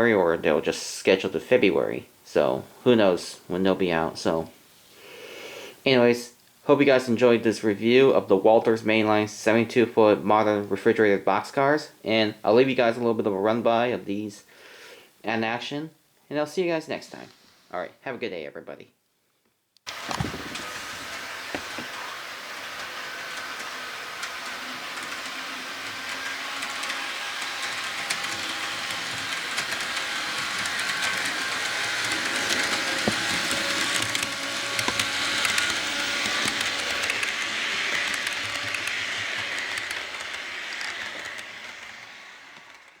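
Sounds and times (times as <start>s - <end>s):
model train rolling hum: 19.9s - 43.0s
wheels clicking over track: 19.9s - 43.0s.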